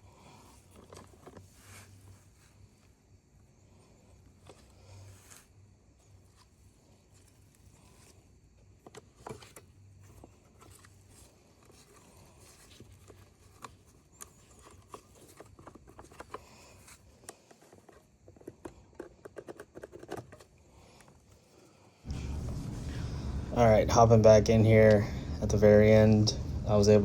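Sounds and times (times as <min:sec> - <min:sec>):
low steady hum: 0:21.5 - 0:27.0.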